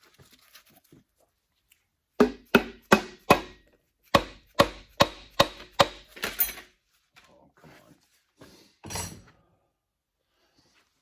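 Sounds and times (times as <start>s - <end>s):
hammer striking engine block: 2.2s - 3.6s, 4.2s - 6.1s.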